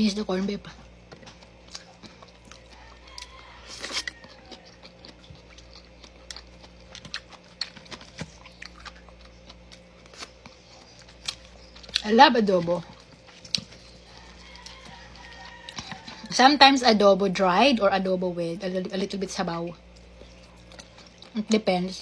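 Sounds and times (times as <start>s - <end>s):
person chewing food: 0.7s - 16.4s, 19.8s - 21.4s.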